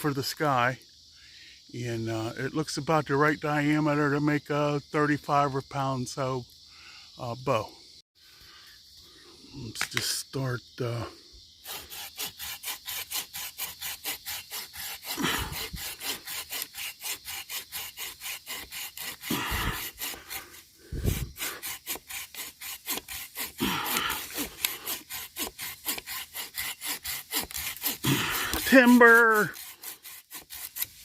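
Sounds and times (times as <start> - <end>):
hand saw cutting wood: 11.6 - 31.0.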